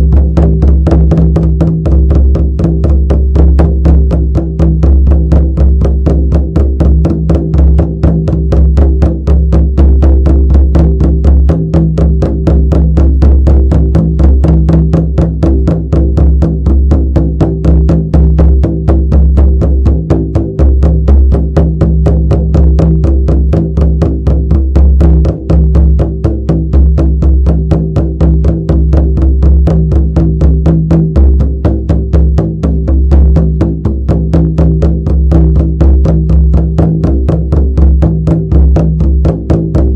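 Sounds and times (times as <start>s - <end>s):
frame drum beaten fast: 0.0s - 39.9s.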